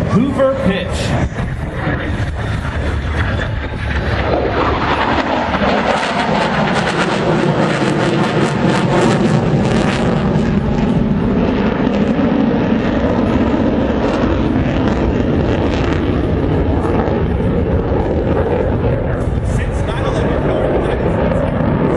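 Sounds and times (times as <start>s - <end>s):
jet engines roaring: 0.0s - 21.9s.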